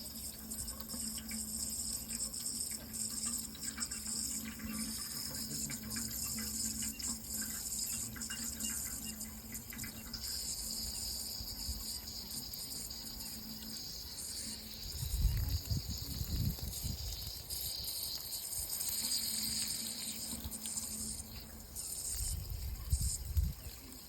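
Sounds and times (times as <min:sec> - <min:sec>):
high-pitched insect chorus: 0:00.0 - 0:24.0
running water: 0:00.0 - 0:24.0.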